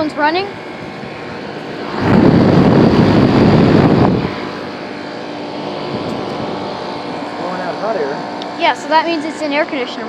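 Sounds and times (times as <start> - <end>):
wind rushing over microphone: 0.0 - 7.1
air conditioner humming: 0.0 - 10.0.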